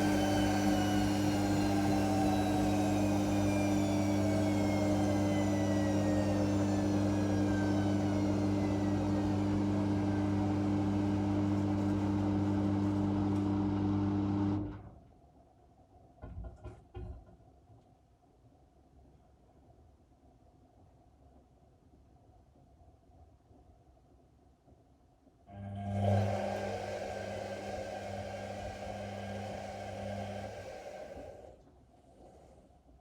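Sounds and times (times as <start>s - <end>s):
low machine hum: 0.0s - 14.9s, 25.5s - 31.6s
washing machine drum whine: 0.0s - 14.9s, 25.5s - 31.4s.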